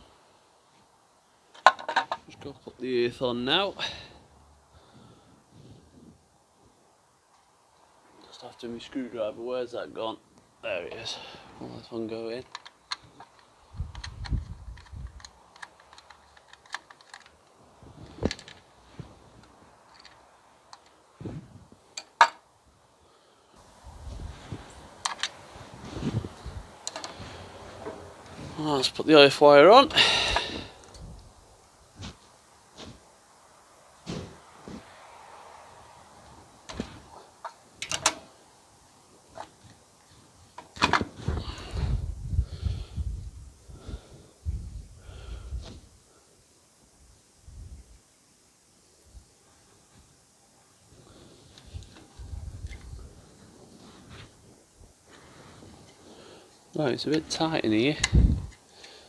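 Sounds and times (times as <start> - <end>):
small metal parts handled: 12.4 - 18.7
screwdriver clicks and taps: 12.5 - 17.5, 26.8 - 27.1.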